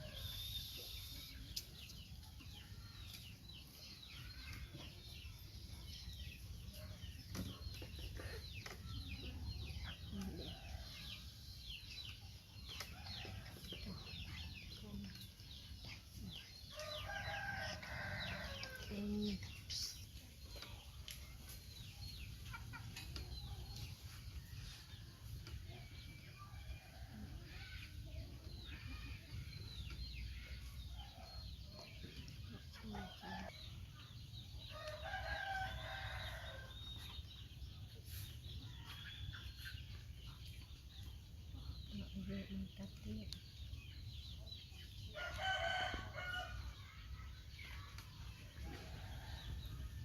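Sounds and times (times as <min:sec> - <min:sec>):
high chirps and clucks: 0:00.0 - 0:50.0.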